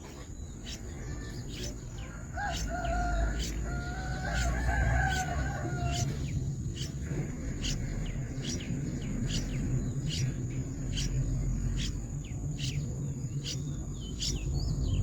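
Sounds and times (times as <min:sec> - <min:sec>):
steady high-pitched whine: 0:00.0 - 0:15.0
rooster crowing: 0:02.0 - 0:06.4.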